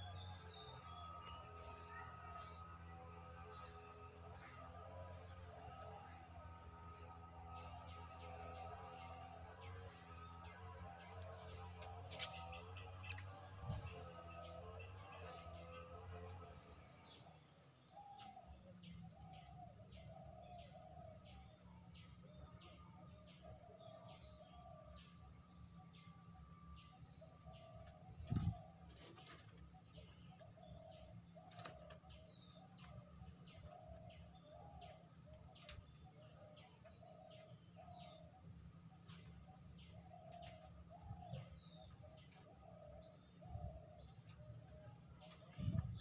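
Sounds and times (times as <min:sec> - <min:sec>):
lower warbling bird calls: 0:17.1 - 0:46.0.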